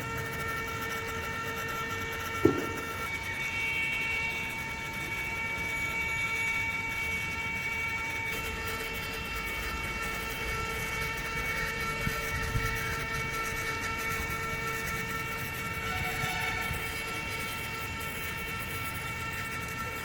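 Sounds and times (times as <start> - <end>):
small motor whining: 0.0 - 20.0
light knocks: 2.4 - 3.2.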